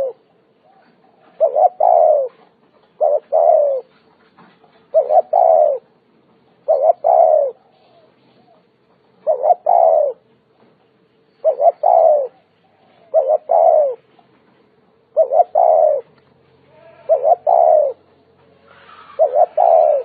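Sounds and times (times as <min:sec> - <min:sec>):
dove cooing: 0:00.0 - 0:06.0, 0:06.6 - 0:10.3, 0:11.4 - 0:14.3, 0:15.0 - 0:18.1, 0:18.7 - 0:20.0.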